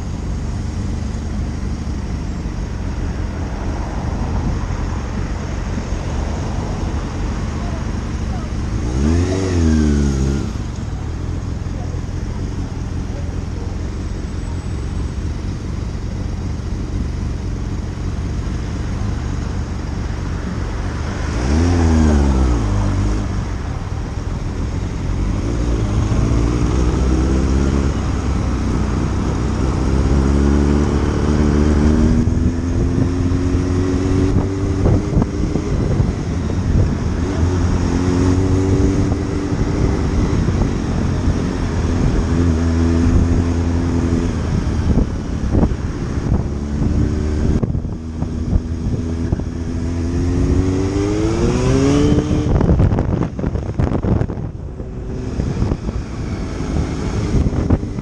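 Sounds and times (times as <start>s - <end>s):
motorcycle engine revving: 6.8s - 58.0s
wind rush: 31.6s - 58.0s.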